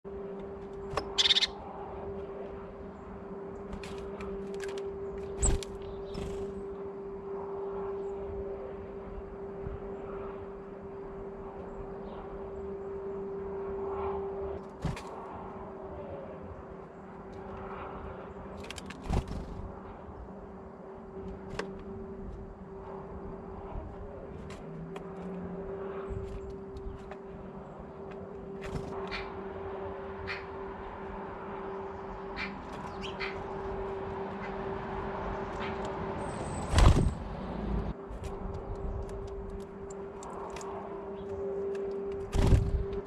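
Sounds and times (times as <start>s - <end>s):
birds chirping: 0.6s - 6.8s, 30.1s - 37.9s.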